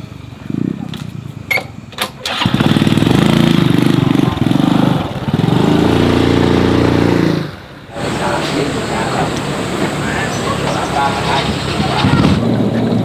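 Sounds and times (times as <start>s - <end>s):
small engine running: 2.3s - 13.0s.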